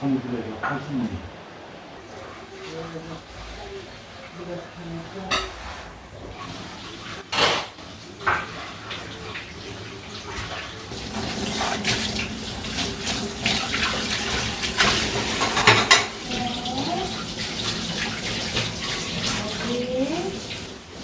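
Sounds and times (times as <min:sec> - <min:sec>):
water splashing: 0:01.9 - 0:21.0
tap water running into sink: 0:05.2 - 0:21.0.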